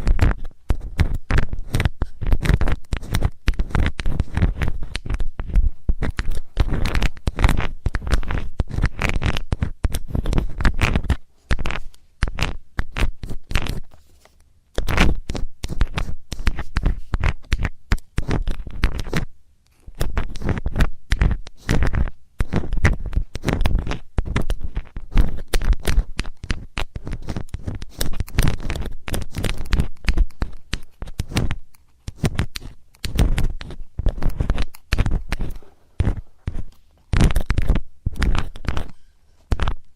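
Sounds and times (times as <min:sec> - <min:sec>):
metal tool scraping microphone: 0:27.0 - 0:39.9.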